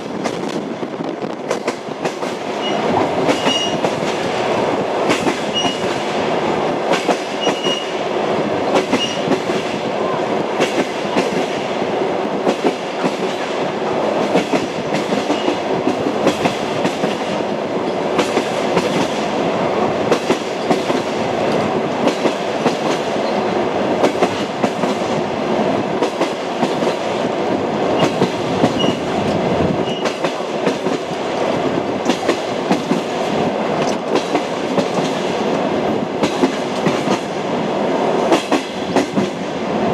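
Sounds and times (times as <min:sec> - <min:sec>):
train wheels knocking over rail joints: 0:01.4 - 0:06.2, 0:36.2 - 0:37.4.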